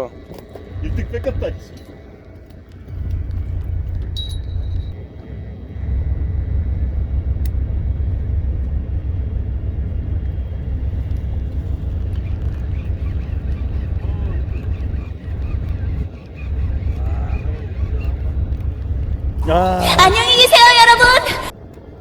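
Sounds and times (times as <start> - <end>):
steady low rumble: 0.0 - 22.0
click: 7.4 - 7.6.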